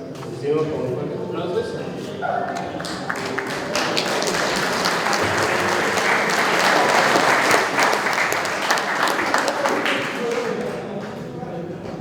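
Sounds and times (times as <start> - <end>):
audience applauding in a hall: 2.5 - 11.4.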